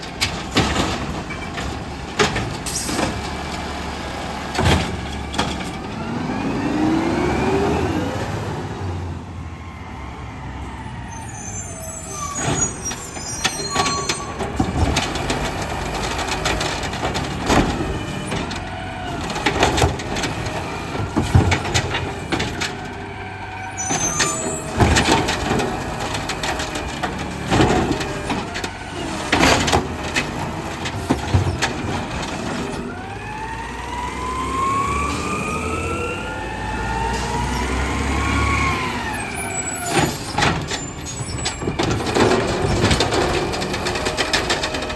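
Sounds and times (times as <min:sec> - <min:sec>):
metal bangs and clanks: 0:39.9 - 0:44.9.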